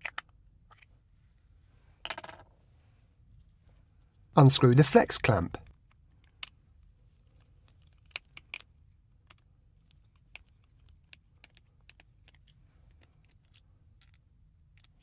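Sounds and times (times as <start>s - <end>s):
plastic plug parts handled: 0.0s - 0.9s.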